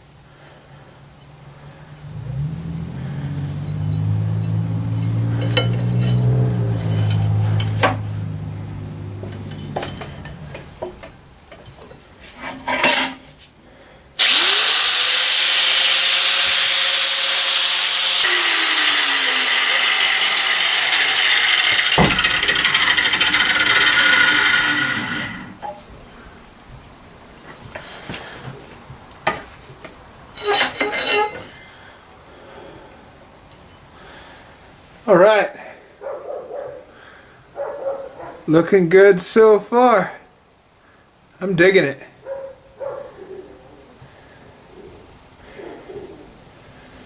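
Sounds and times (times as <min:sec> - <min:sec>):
low hum: 0:01.8 - 0:10.6
angle grinder grinding steel: 0:02.1 - 0:10.8, 0:14.2 - 0:25.8, 0:30.4 - 0:31.5.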